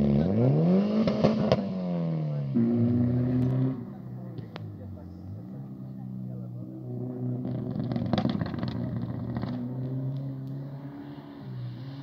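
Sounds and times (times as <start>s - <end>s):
turbocharged engine revving: 0.0s - 12.0s.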